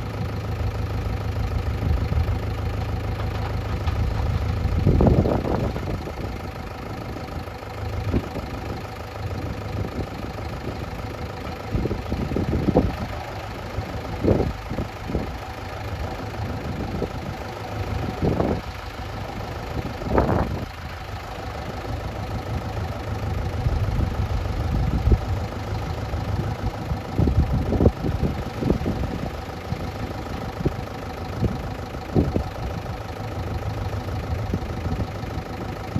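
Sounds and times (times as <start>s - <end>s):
heavy diesel engine running: 0.0s - 35.9s
knocks and clanks: 3.2s - 6.0s.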